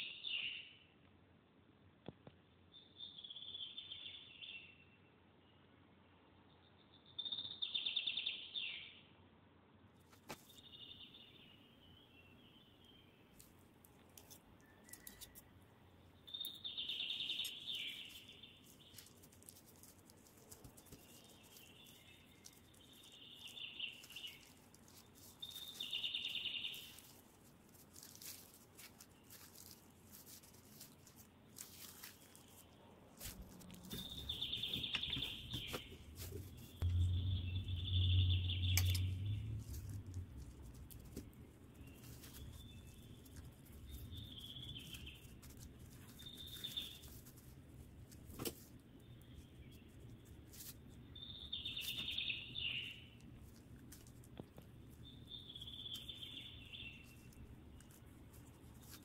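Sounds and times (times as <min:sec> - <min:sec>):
small bird chirping: 0:02.6 - 0:05.1, 0:06.4 - 0:09.1, 0:10.1 - 0:59.0
steady low hum: 0:23.9 - 0:51.5.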